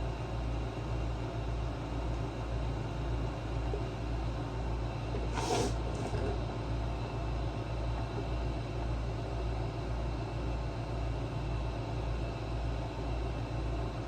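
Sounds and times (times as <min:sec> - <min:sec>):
short noisy clatter: 0:05.2 - 0:06.6.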